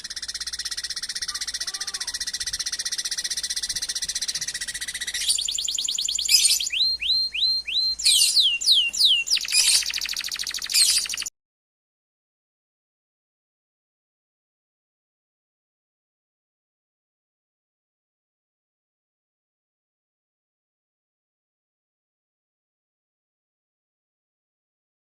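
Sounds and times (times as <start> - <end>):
songbird trilling and whistling: 0.0 - 11.3.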